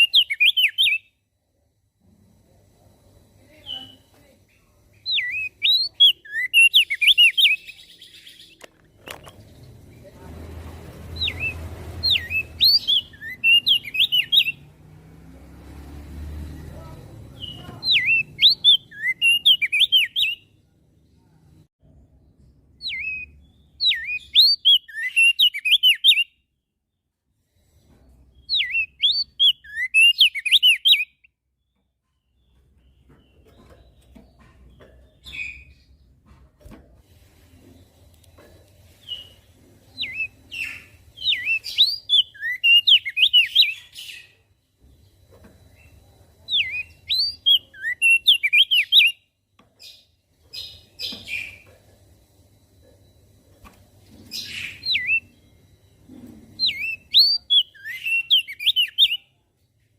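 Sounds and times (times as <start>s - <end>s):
bird chirping and whistling: 0.0s - 1.1s, 5.0s - 8.6s, 11.2s - 14.7s, 17.4s - 20.5s, 22.8s - 26.4s, 28.4s - 31.3s, 39.0s - 44.4s, 46.5s - 51.6s, 54.3s - 55.4s, 56.6s - 59.2s.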